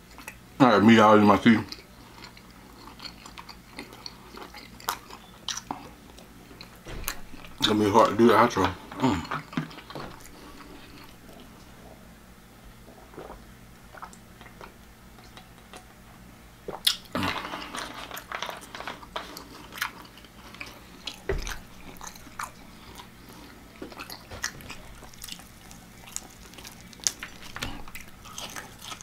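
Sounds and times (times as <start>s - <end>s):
person chewing food: 1.7s - 7.7s, 8.8s - 16.0s, 16.7s - 29.0s
dull thump: 6.8s - 8.2s, 21.2s - 22.5s, 23.8s - 25.4s.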